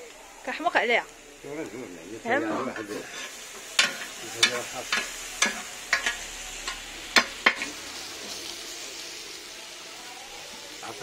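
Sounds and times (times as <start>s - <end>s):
food sizzling on griddle: 0.0s - 11.0s
metal spatula striking griddle: 3.2s - 7.8s.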